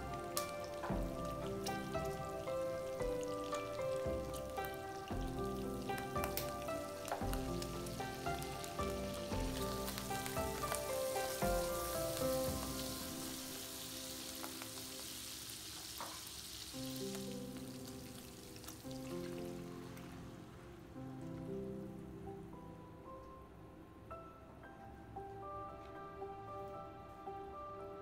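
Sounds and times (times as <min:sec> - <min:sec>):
background music: 0:00.0 - 0:15.3, 0:16.8 - 0:28.0
bacon sizzling in a frying pan: 0:00.0 - 0:20.1.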